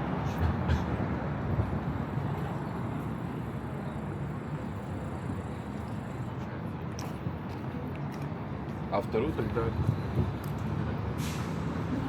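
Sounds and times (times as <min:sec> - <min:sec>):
low rumble of city traffic: 0:00.0 - 0:12.0.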